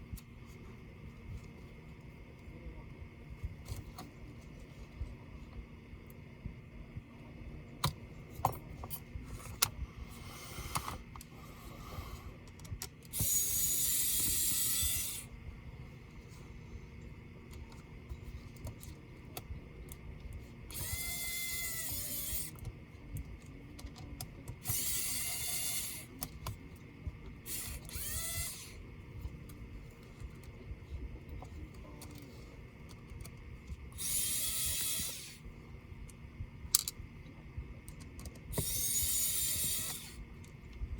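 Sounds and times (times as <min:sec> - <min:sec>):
electric screwdriver whirring: 0:13.1 - 0:15.3, 0:20.7 - 0:22.6, 0:24.6 - 0:26.5, 0:27.4 - 0:28.8, 0:33.9 - 0:35.5, 0:38.5 - 0:40.2.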